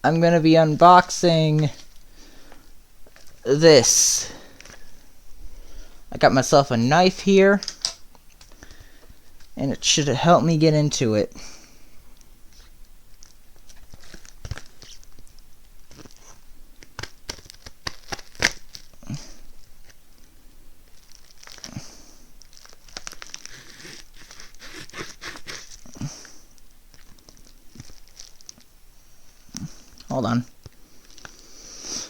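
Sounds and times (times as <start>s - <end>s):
knife cutting plastic packaging: 15.9s - 18.9s, 22.6s - 25.9s
plastic snapping: 16.8s - 18.8s.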